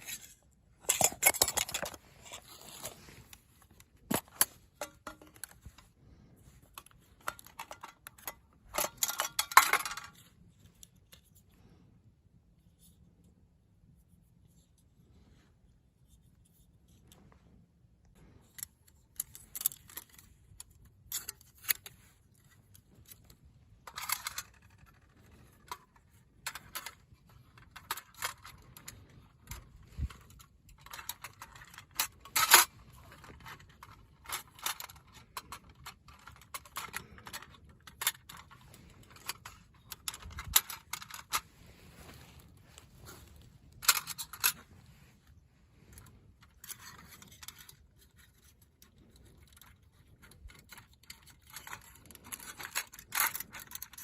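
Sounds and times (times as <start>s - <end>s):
metal gear clinking and rattling: 0.8s - 3.3s, 6.7s - 10.2s, 18.4s - 44.7s.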